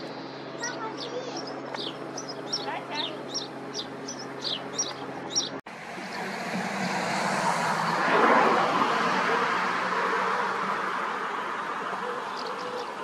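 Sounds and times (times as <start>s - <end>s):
steady low hum: 0.0s - 13.0s
small bird chirping: 0.1s - 5.6s
rushing noise: 5.7s - 12.0s.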